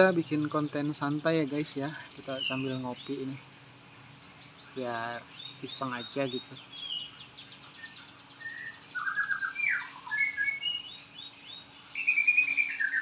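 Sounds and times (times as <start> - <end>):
songbird whistling and trilling: 4.2 - 13.0.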